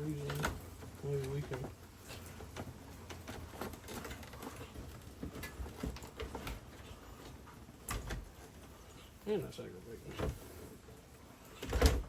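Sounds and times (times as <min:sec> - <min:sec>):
hands clicking and tapping parts: 0:00.0 - 0:09.2.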